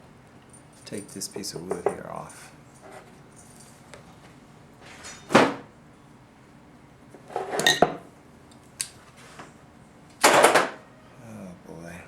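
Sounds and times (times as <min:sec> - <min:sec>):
parts scraping on workbench: 0:07.2 - 0:07.9.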